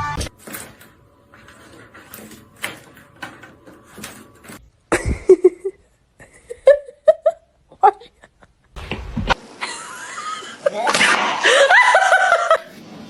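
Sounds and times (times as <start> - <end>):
person laughing: 4.9 - 8.8, 9.6 - 12.7.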